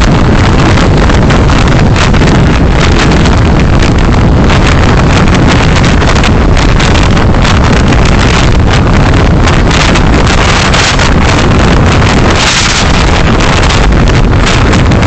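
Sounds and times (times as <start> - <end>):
car road and wind noise: 0.0 - 15.0.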